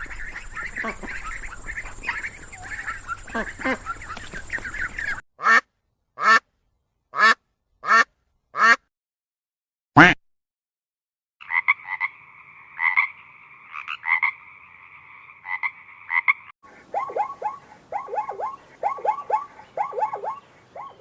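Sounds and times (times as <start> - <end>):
frogs calling: 0.0 - 5.6, 11.4 - 21.0.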